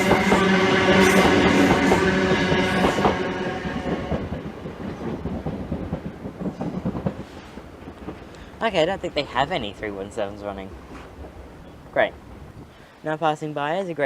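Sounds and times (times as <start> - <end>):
electric train whine: 0.0 - 12.6
wheels clicking over rail joints: 4.1 - 12.2.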